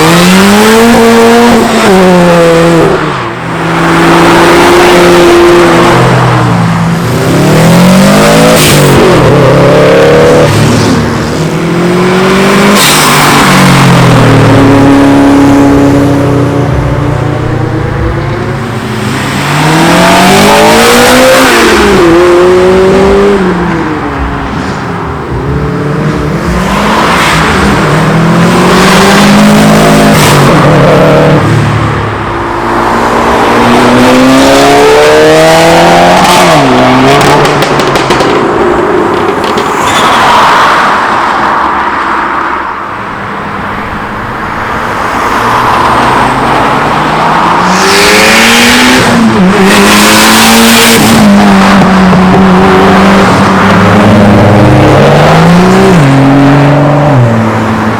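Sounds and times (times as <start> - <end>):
car engines revving past: 40.7 - 57.9.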